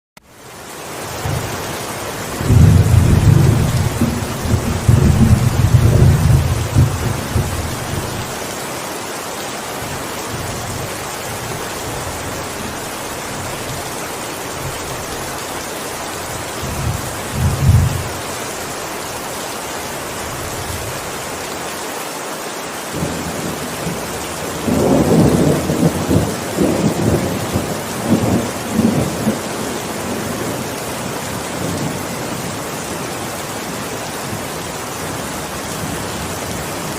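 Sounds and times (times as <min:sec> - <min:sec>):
steady rain falling: 0:00.2 - 0:36.9
thunder rumbling: 0:02.3 - 0:08.3, 0:16.6 - 0:18.2, 0:23.0 - 0:30.7.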